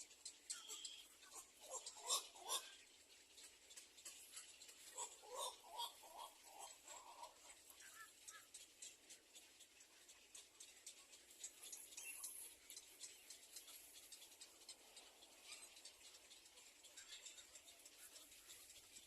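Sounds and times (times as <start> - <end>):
faint scratching and rustling: 6.2 - 19.0.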